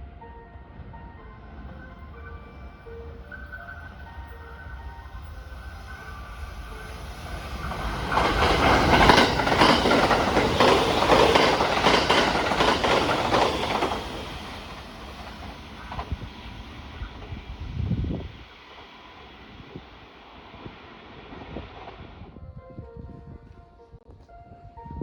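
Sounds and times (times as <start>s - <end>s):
train wheels clattering on rails: 6.4s - 17.6s.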